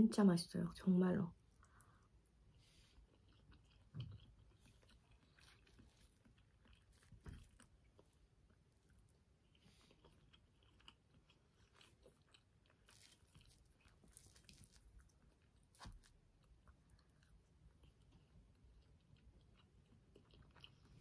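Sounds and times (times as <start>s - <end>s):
chewing soft food: 1.3s - 21.0s.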